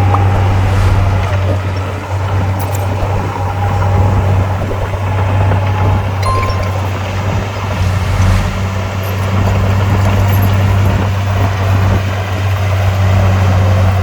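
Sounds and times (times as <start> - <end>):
diesel engine droning: 0.0 - 2.2, 6.3 - 10.8.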